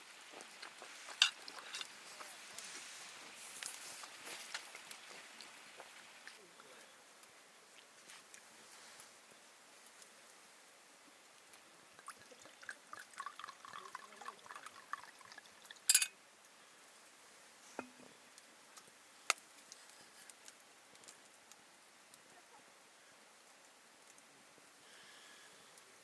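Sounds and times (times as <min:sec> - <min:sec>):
liquid pouring into glass: 0:12.0 - 0:16.1.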